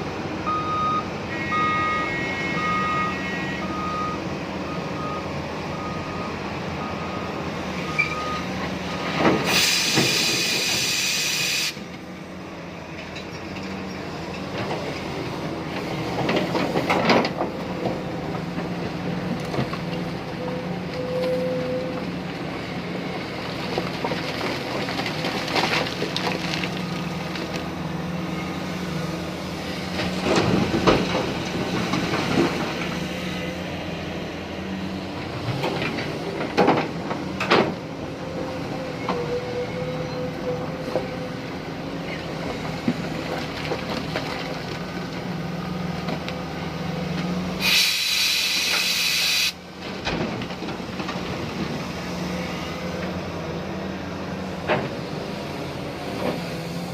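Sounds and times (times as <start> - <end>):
excavator diesel engine running: 0.0 - 56.9
loud hiss: 9.5 - 11.8, 47.6 - 49.6.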